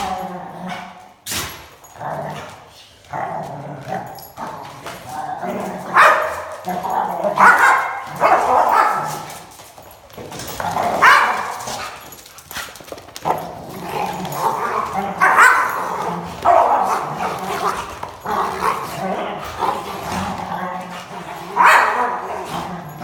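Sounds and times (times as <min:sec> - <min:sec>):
dog barking and yipping: 0:05.6 - 0:09.5, 0:10.8 - 0:12.1, 0:14.0 - 0:19.8, 0:21.4 - 0:23.0.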